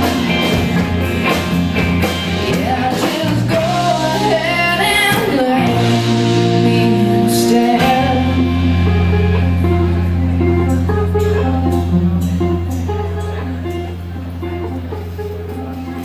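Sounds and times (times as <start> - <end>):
live rock band playing: 0.0 - 16.0
woman singing: 2.4 - 10.0.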